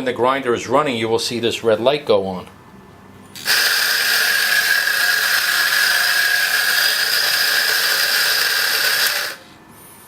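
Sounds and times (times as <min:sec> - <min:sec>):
coffee grinder whining: 0:03.4 - 0:09.5.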